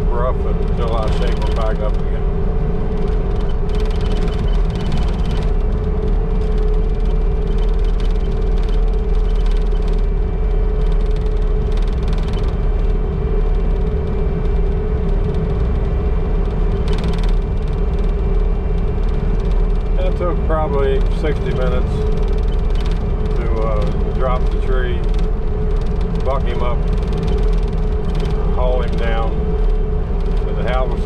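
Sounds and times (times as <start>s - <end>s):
steady whine: 0.0s - 31.0s
vehicle engine running: 0.0s - 31.0s
vehicle rattles: 0.0s - 31.0s.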